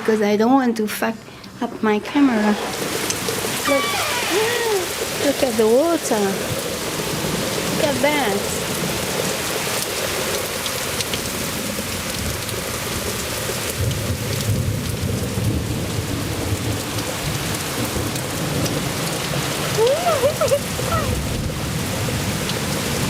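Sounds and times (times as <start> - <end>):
heavy rain pouring: 1.5 - 23.0
thunder rumbling: 13.8 - 23.0.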